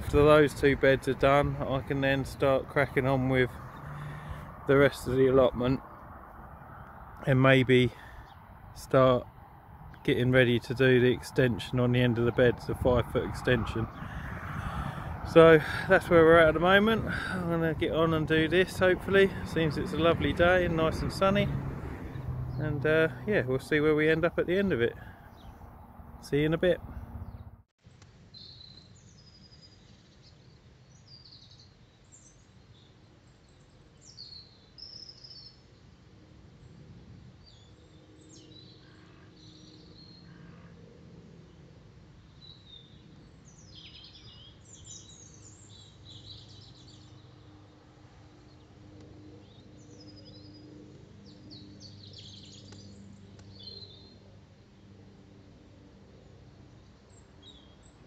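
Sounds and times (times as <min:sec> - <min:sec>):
small birds chirping: 0:22.1 - 0:35.8, 0:37.4 - 0:40.8, 0:41.4 - 0:54.9, 0:56.2 - 0:58.0.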